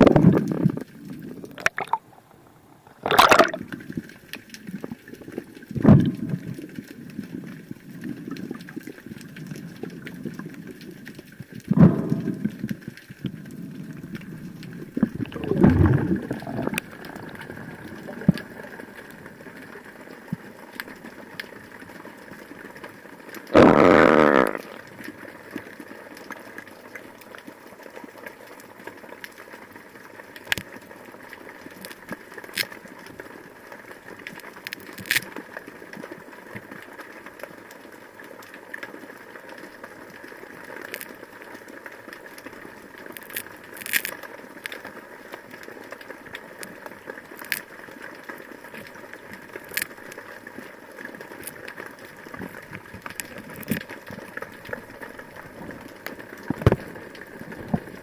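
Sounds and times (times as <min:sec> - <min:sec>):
sharp clicks and crackles: 0:02.9 - 0:58.0.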